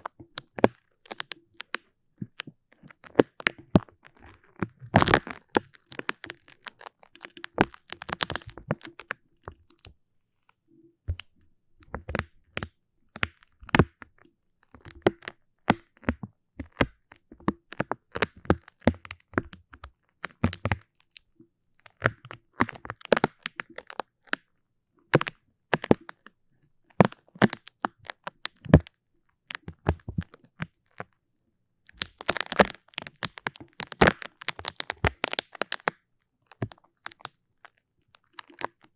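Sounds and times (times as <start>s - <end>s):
sticky material crackling: 2.9s - 9.8s, 32.0s - 35.9s, 38.2s - 38.8s.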